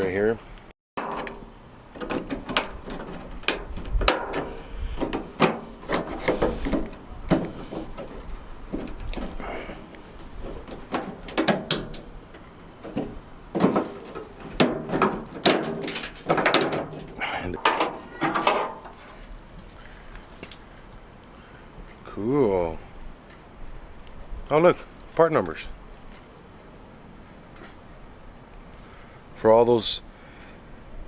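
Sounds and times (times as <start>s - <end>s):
window hardware clanking and scraping: 1.0s - 19.2s.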